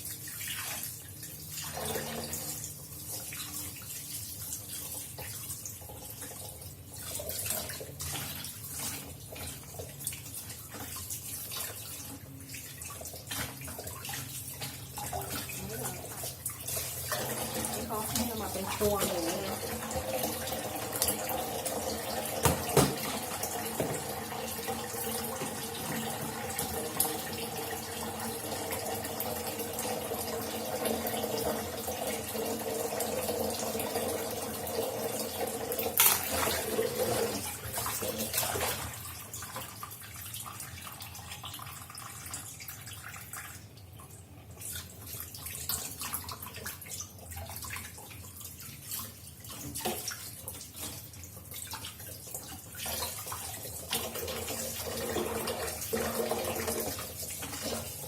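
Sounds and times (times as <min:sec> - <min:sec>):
tap running into sink: 0:20.9 - 0:27.5.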